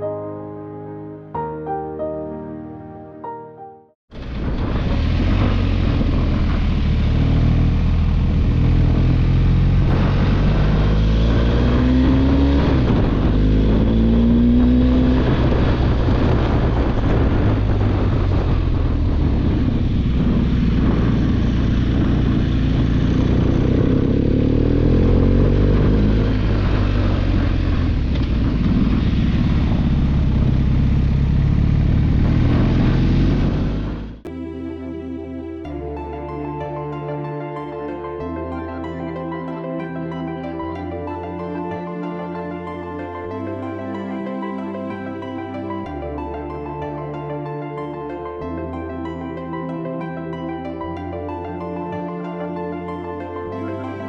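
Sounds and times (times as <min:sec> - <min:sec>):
wind rush on microphone: 0:04.1 - 0:34.2
motorcycle engine accelerating: 0:04.1 - 0:34.3.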